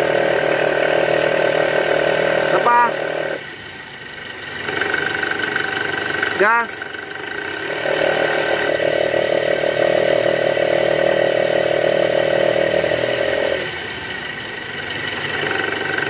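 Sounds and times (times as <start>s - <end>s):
car engine revving: 0.0s - 16.0s
snoring growl from drive belt: 7.4s - 13.7s.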